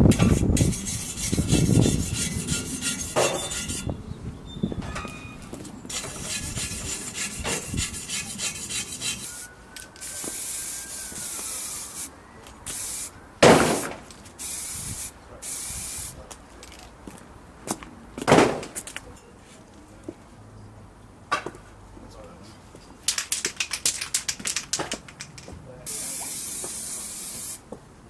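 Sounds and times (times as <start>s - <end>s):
scratchy rubbing and scraping: 0.1s - 3.9s, 5.9s - 9.3s
short bursts of high hiss: 9.2s - 12.1s, 12.7s - 13.1s, 13.7s - 16.2s, 25.9s - 27.6s.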